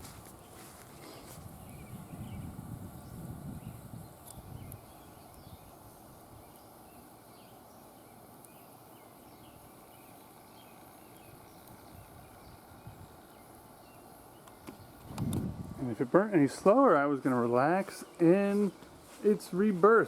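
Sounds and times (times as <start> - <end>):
low steady background noise: 0.0 - 20.0
faint bird chirps: 0.4 - 15.0.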